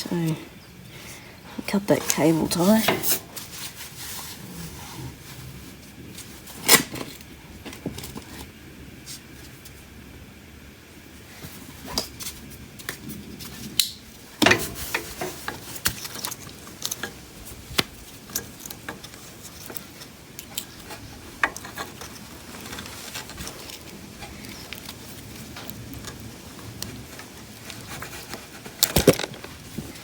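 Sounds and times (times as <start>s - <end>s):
tools clicking and rattling: 13.8s - 17.4s, 18.1s - 26.2s.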